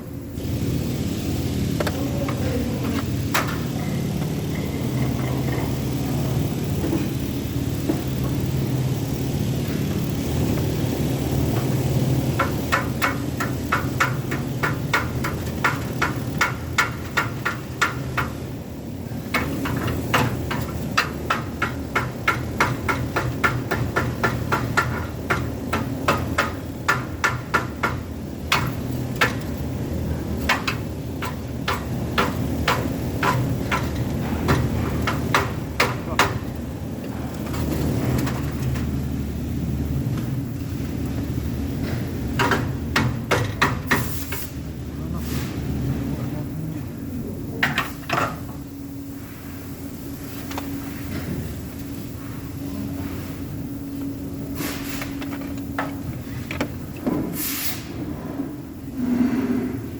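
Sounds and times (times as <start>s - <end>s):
machine hum: 0.0s - 59.9s
hammer chipping metal: 11.6s - 18.4s, 19.3s - 29.6s, 30.4s - 36.6s.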